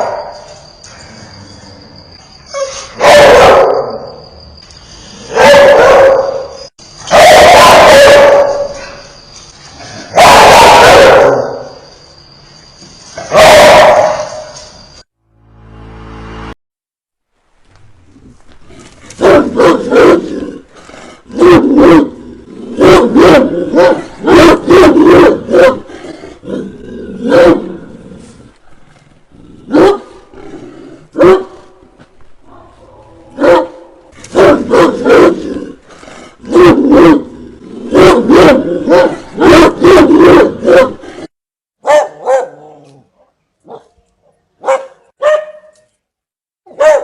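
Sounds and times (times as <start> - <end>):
dogs barking fiercely: 2.6 - 4.0, 5.3 - 9.0, 10.1 - 11.7, 13.2 - 14.5, 19.2 - 20.4, 21.3 - 25.9, 27.2 - 27.8, 29.7 - 30.2, 31.1 - 31.7, 33.3 - 35.6, 36.3 - 41.0, 41.8 - 42.7, 44.6 - 45.7, 46.7 - 47.0.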